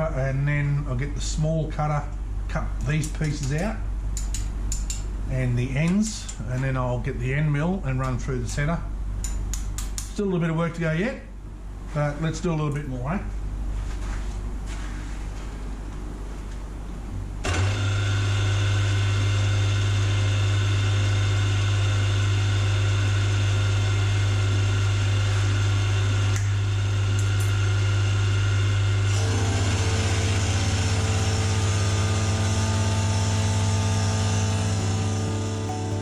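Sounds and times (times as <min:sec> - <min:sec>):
milling machine humming: 0:17.4 - 0:36.0
steady tones: 0:32.1 - 0:36.0.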